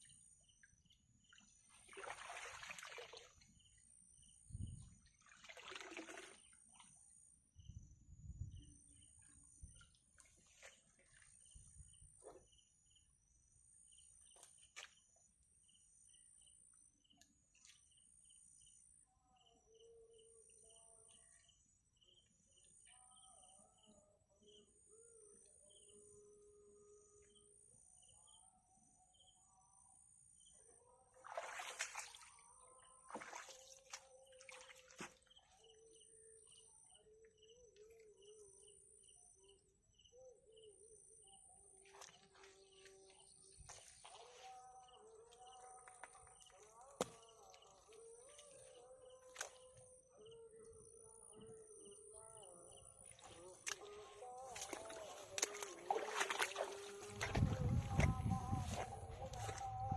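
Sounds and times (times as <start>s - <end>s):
insect chirps: 0.0s - 28.4s, 30.0s - 59.9s
water splashes: 1.7s - 3.7s, 5.0s - 6.6s, 31.2s - 32.4s, 33.1s - 35.4s, 53.1s - 59.7s.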